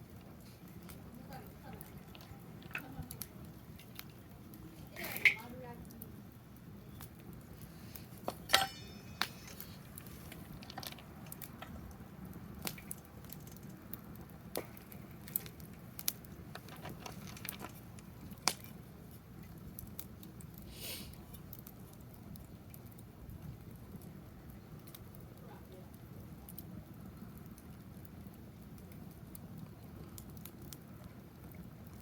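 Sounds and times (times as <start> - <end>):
wood fire crackling and popping: 0.0 - 32.0
brief fire hiss: 20.7 - 21.2.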